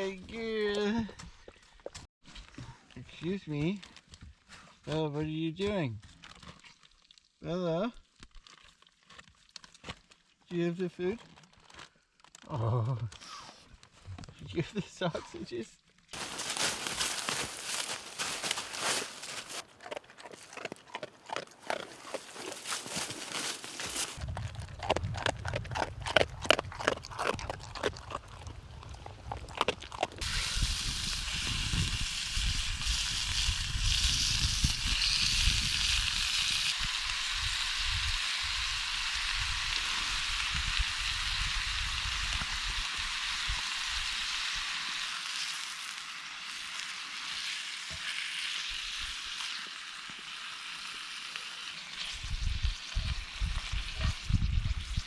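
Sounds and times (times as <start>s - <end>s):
food sizzling in a frying pan: 30.2s - 55.0s.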